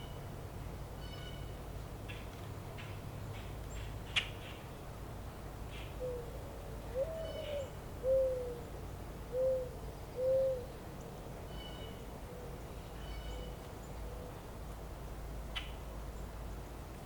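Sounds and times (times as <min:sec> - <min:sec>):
bird hooting: 0:06.0 - 0:08.7, 0:09.3 - 0:10.7.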